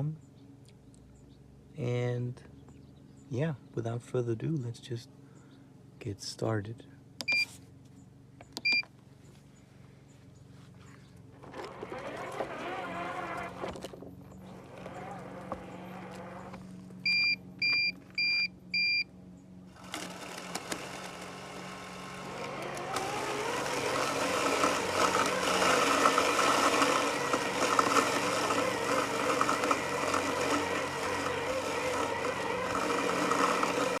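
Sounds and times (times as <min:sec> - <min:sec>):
robotic lawn mower beeping: 0:07.2 - 0:07.5, 0:08.6 - 0:08.9, 0:11.4 - 0:19.1, 0:19.7 - 0:34.0
mower motor whine: 0:08.4 - 0:08.9, 0:10.8 - 0:34.0.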